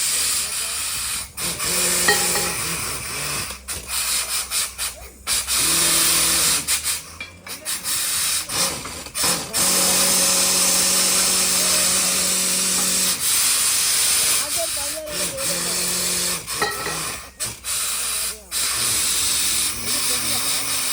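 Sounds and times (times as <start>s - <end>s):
hiss of air: 17.0s - 20.9s.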